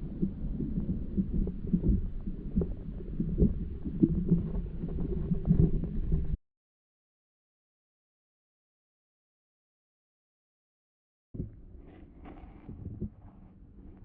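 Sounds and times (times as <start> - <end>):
muffled underwater rumbling: 0.0 - 6.4, 11.4 - 14.0.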